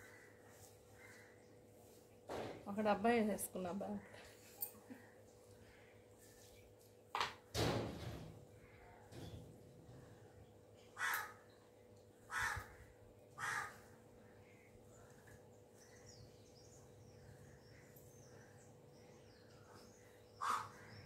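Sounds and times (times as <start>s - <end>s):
faint steady hum: 0.0s - 7.1s, 8.5s - 21.0s
bird harsh calls: 13.4s - 13.9s, 20.0s - 21.0s
small birds chirping: 14.2s - 21.0s.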